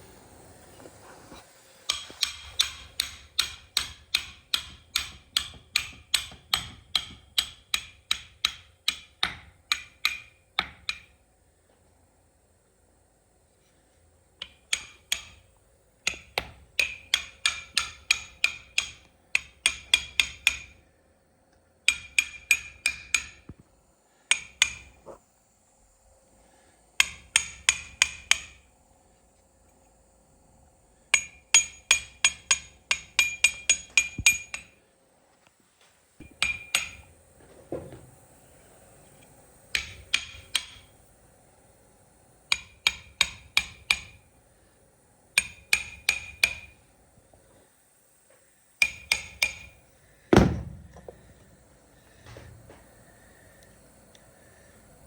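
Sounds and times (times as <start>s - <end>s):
hammer tapping on metal parts: 1.9s - 11.2s, 14.4s - 20.8s, 21.8s - 23.6s, 24.2s - 25.1s, 27.0s - 28.7s, 31.1s - 34.8s, 36.2s - 38.1s, 39.1s - 41.0s, 42.5s - 44.3s, 45.3s - 46.9s, 48.8s - 51.5s.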